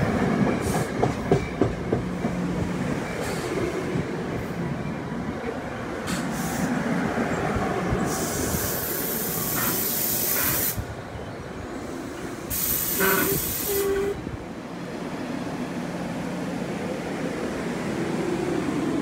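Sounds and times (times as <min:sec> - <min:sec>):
train coaches rolling past: 0:00.0 - 0:19.0
train air hiss: 0:00.6 - 0:01.0, 0:06.0 - 0:07.0, 0:07.9 - 0:11.1, 0:11.7 - 0:14.4.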